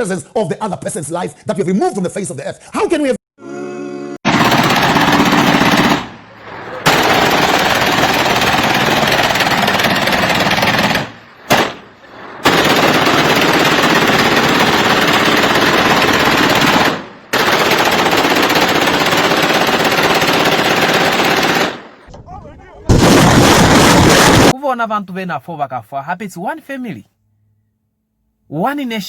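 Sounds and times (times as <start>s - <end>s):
automatic gunfire bursts: 4.3s - 21.8s.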